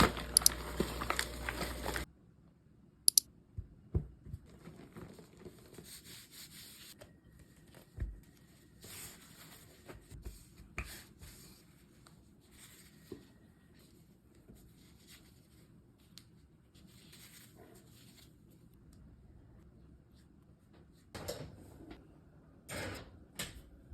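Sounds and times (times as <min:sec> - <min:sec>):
rustling and tearing: 0:00.0 - 0:02.1, 0:04.5 - 0:06.9.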